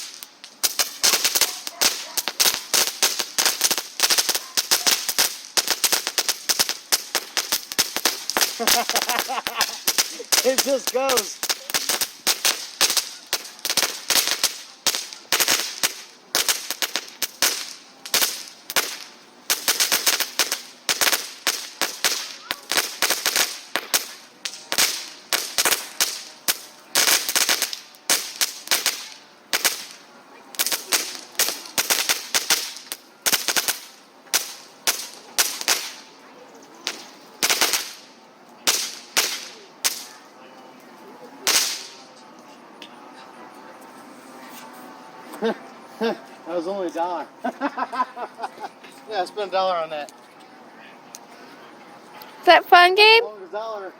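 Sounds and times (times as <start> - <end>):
firework cracking pops: 0.0 - 40.2, 41.4 - 42.2.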